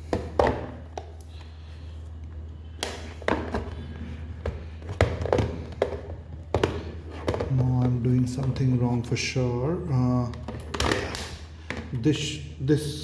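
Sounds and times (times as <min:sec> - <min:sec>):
hard plastic parts knocking: 0:00.0 - 0:01.1, 0:04.4 - 0:08.7.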